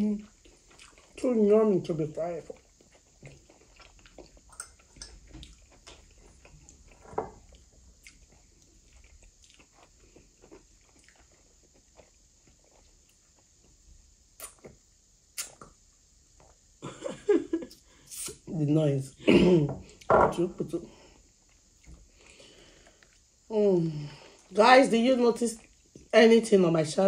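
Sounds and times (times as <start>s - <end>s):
chewing food with smacks: 0.1s - 1.4s, 2.2s - 16.8s, 21.3s - 23.4s, 25.5s - 26.1s.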